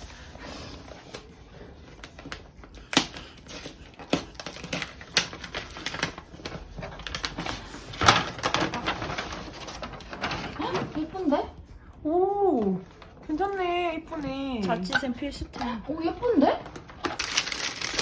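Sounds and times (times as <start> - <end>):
packaging being unpacked: 0.0 - 11.2, 16.2 - 18.0.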